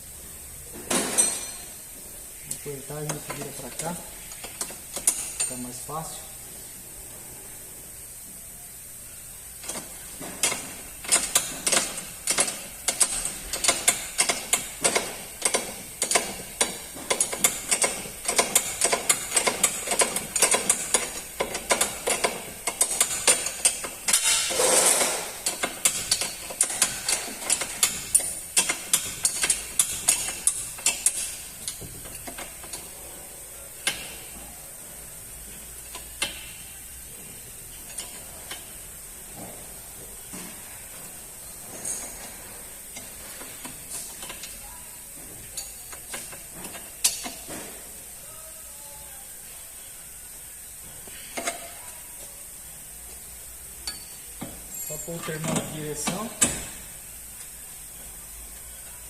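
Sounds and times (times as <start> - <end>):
ratchet wrench clicking: 9.6 - 32.9, 53.8 - 54.2.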